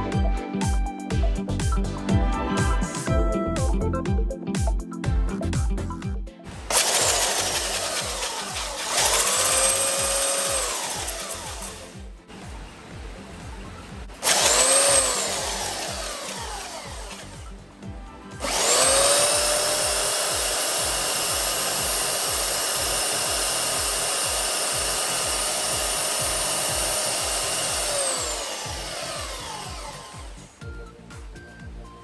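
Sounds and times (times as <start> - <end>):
belt sander motor whine: 6.7 - 12.1, 14.2 - 17.6, 18.4 - 30.6.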